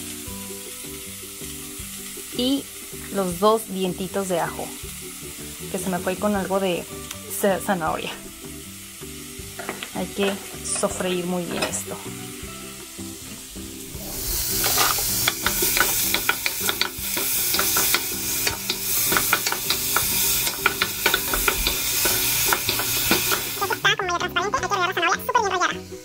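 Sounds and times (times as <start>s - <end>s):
vegetables sizzling in oil: 0.0s - 26.0s
utensil clicking against pan: 14.6s - 23.9s.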